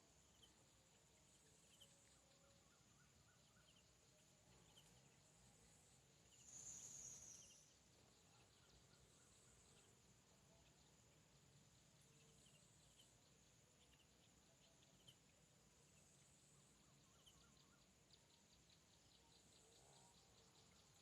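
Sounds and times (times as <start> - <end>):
high-pitched insect trill: 1.6 - 9.9.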